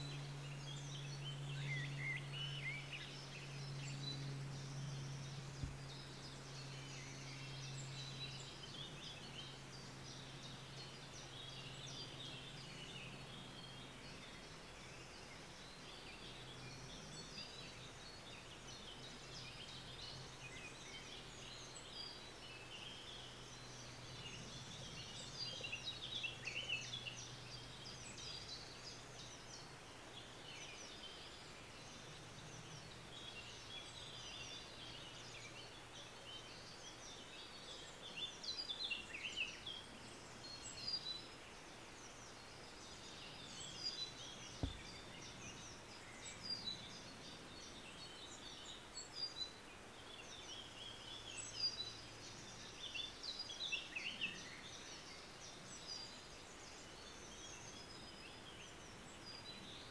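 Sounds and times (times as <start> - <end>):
faint low hum: 0.0 - 59.9
small birds chirping: 0.0 - 59.9
soft knock: 44.6 - 45.0.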